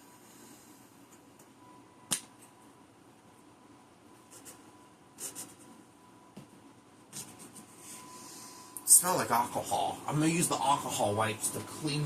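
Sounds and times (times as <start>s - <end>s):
sharp click: 2.1s - 2.4s.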